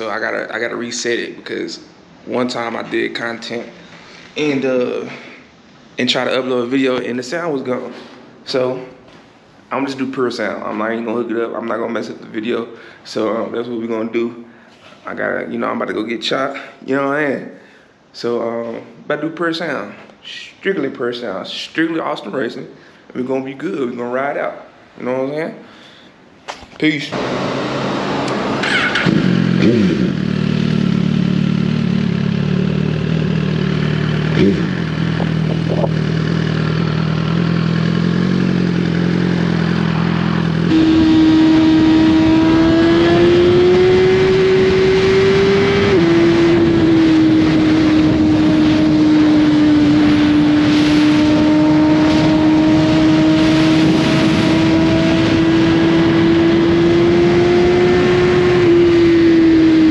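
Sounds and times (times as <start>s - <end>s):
motorcycle engine: 27.2s - 59.9s.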